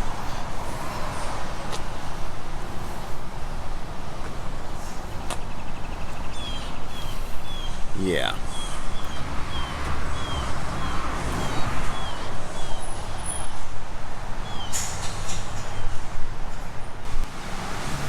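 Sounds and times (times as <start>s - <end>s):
bird chirping: 8.4s - 13.0s.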